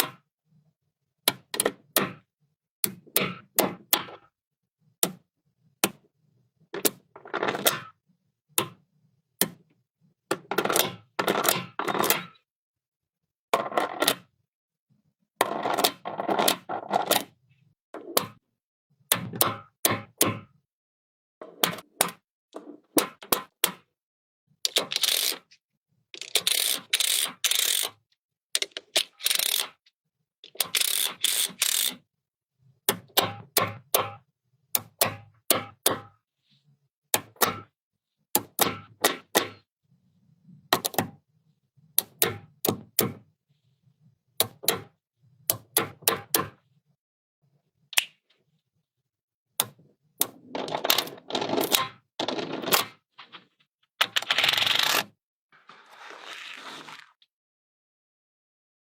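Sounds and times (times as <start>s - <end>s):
magnetic pieces clicking and clattering: 24.7s - 25.4s, 30.5s - 32.0s.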